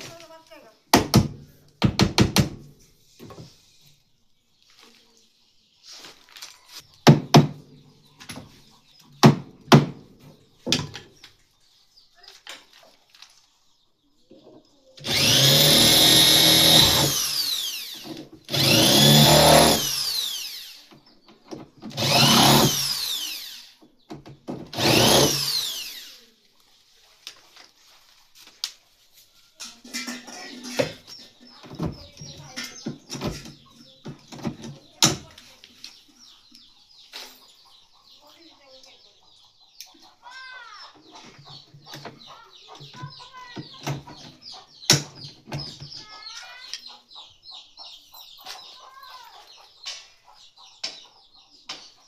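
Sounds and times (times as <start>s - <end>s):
power tool motor whining: 15.0s - 20.8s, 21.9s - 23.8s, 24.7s - 26.2s.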